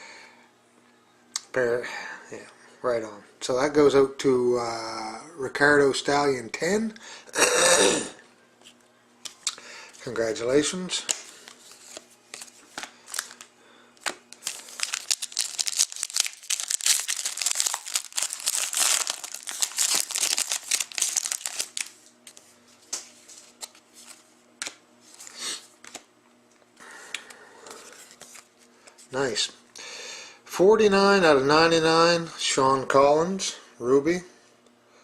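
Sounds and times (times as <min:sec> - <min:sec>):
plastic wrapper crinkling: 0:11.0 - 0:24.2.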